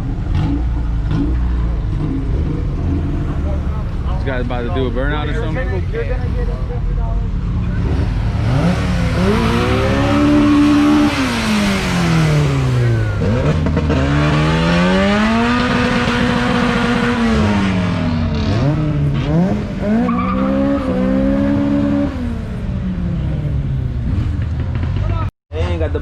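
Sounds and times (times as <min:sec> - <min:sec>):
tyres spinning and squealing: 0:07.5 - 0:13.5
car engine revving hard: 0:07.8 - 0:22.5.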